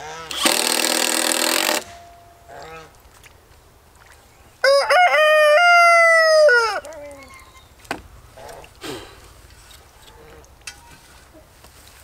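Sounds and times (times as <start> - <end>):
rooster crowing: 4.6 - 6.9.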